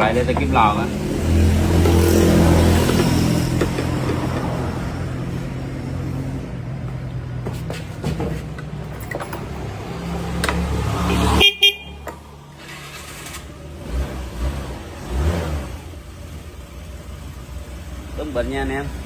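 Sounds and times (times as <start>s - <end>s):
scooter engine running: 0.0s - 5.3s.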